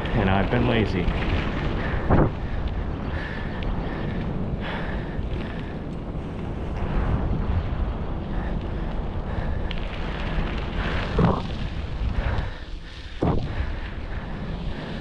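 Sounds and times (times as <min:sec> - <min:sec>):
wind rumbling on microphone: 0:00.0 - 0:15.0
person breathing heavily: 0:01.7 - 0:06.3, 0:08.2 - 0:15.0.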